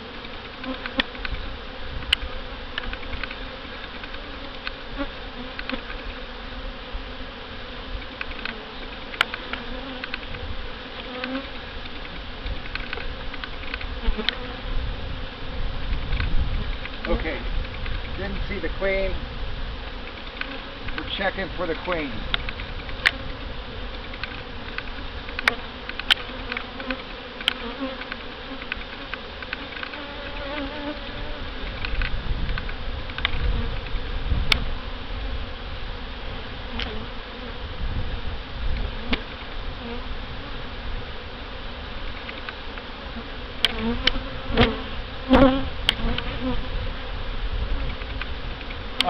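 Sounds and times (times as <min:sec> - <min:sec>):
honey bees buzzing: 0:00.0 - 0:49.0.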